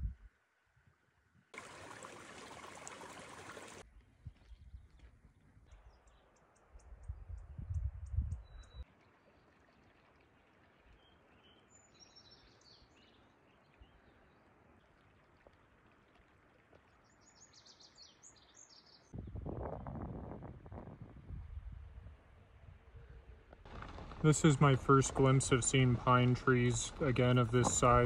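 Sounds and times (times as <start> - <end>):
wind rumble on microphone: 0.0 - 0.3, 4.1 - 6.0, 6.8 - 8.8, 19.2 - 28.0
open-air hiss: 1.6 - 3.8.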